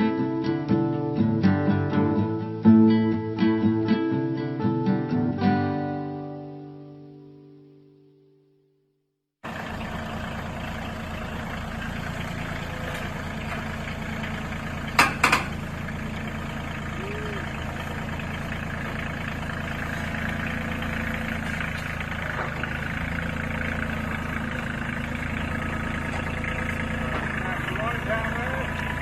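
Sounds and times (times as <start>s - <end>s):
tractor diesel engine running: 9.4s - 29.0s
sharp knocks: 14.9s - 15.6s.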